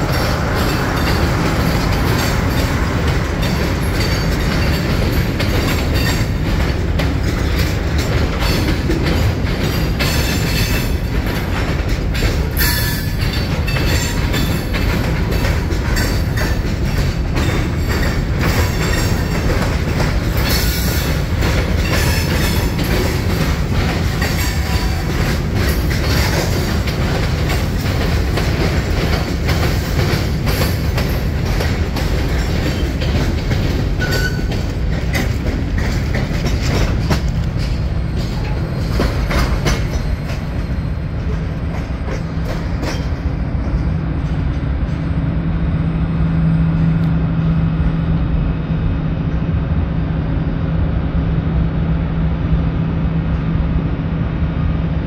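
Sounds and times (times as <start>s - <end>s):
train wheels clacking on track: 0.0s - 47.6s
wheel squeal: 34.0s - 34.5s.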